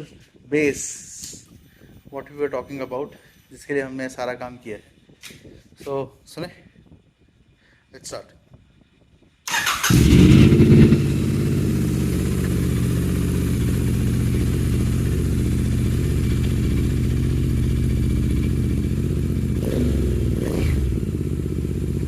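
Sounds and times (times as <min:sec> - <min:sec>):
motorcycle engine idling: 0:09.6 - 0:22.0.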